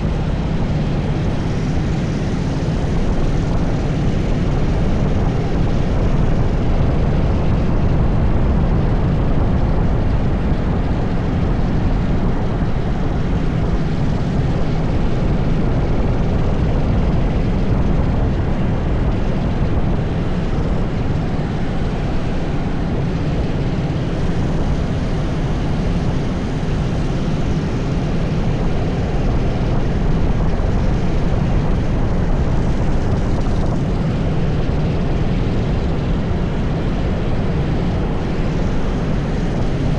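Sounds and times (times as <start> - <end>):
go-kart engine droning: 0.0 - 39.9.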